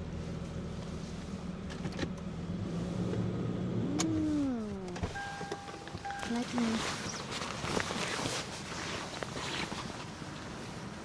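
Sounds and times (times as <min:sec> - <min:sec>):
electronic chime tone: 0:05.2 - 0:06.5.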